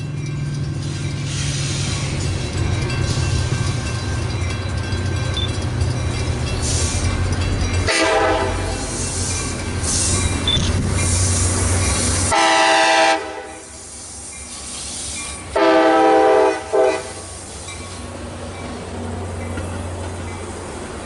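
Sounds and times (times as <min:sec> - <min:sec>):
diesel locomotive rumble: 0:00.0 - 0:21.0
rail noise: 0:00.0 - 0:21.0
locomotive horn blasts: 0:07.9 - 0:08.9, 0:12.3 - 0:13.8, 0:15.6 - 0:17.3.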